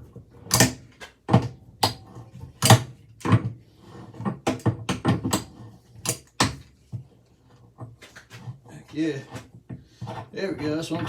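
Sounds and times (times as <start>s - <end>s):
sharp clicks and knocks: 0.5s - 2.0s, 2.6s - 3.4s, 4.5s - 6.7s.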